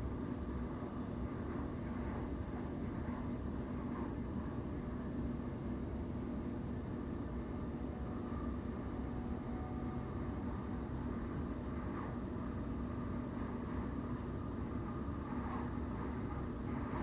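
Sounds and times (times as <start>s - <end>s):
constant hum: 0.0s - 17.0s
train interior rumble: 0.0s - 17.0s.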